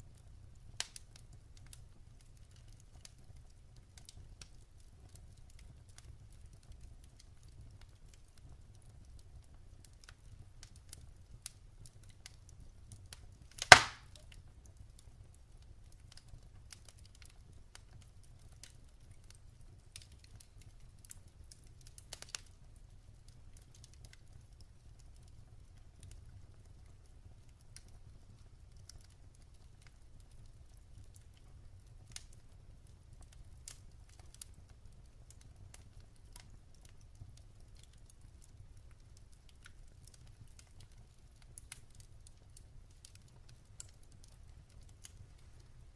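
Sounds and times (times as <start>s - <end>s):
fire crackling: 0.0s - 45.9s
low fire rumble: 0.0s - 45.9s
loud sharp pop: 13.6s - 14.2s
wood snapping: 13.6s - 14.2s.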